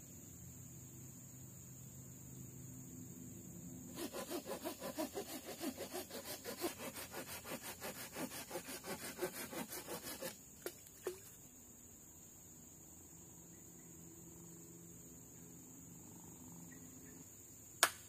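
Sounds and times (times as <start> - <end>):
blade rasping on wood: 3.9 - 10.4.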